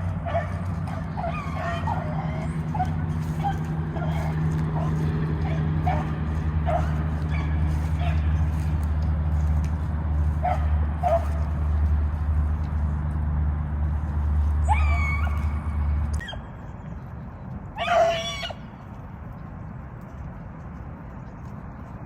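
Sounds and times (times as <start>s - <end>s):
dogs baying: 0.0s - 9.5s, 10.4s - 11.8s.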